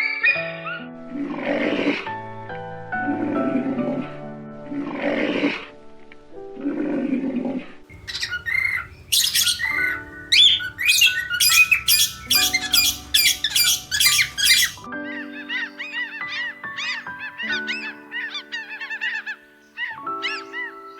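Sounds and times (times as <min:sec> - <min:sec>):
background music: 0:00.0 - 0:20.9
rough animal call: 0:07.9 - 0:14.9
bird squawking: 0:07.9 - 0:20.9.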